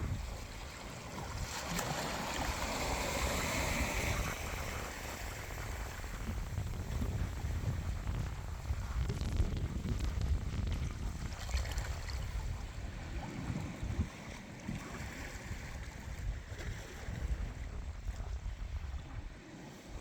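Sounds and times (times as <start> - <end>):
ocean waves washing in: 0.0 - 9.2
wind rumble on microphone: 0.0 - 20.0.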